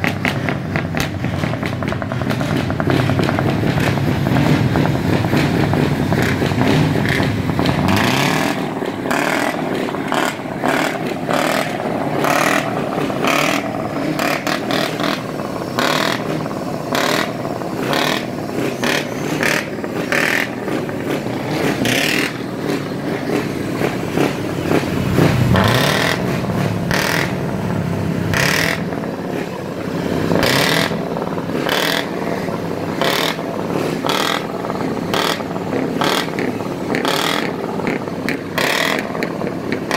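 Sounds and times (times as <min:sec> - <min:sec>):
diesel truck engines revving: 0:00.0 - 0:39.9.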